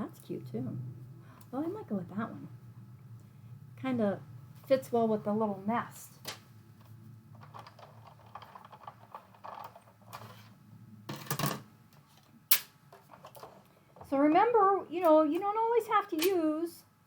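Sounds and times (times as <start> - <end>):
sharp click: 12.5 - 12.7.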